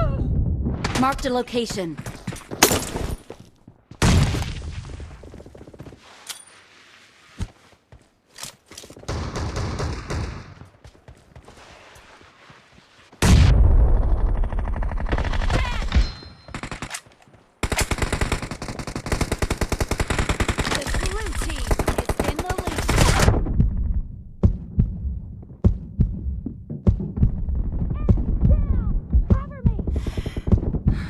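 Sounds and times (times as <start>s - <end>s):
video game gunfire: 17.6s - 23.4s.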